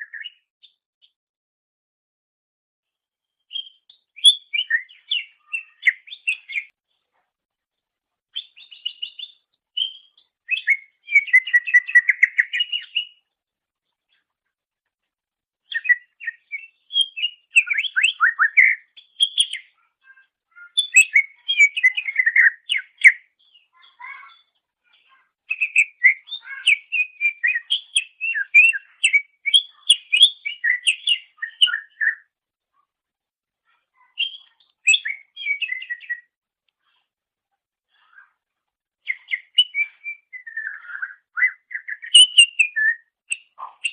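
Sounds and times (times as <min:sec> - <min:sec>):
bird singing whistled notes: 0:00.0 - 0:00.5, 0:03.5 - 0:06.7, 0:08.4 - 0:13.2, 0:15.7 - 0:19.7, 0:20.5 - 0:24.5, 0:25.5 - 0:32.3, 0:34.0 - 0:36.4, 0:39.0 - 0:43.9.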